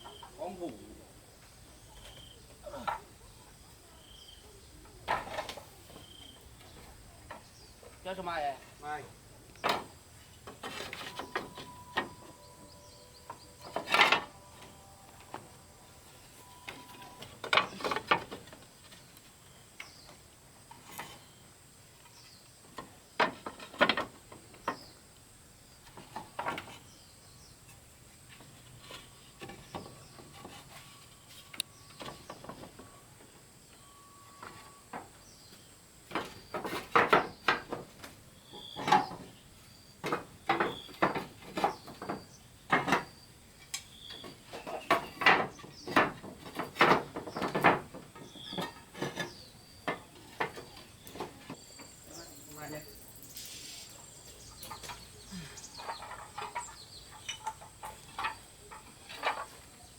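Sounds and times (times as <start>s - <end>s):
knocks and clatter: 9.6s - 15.6s, 22.8s - 24.9s, 36.1s - 39.4s, 40.0s - 43.2s, 44.2s - 51.6s, 55.7s - 59.7s.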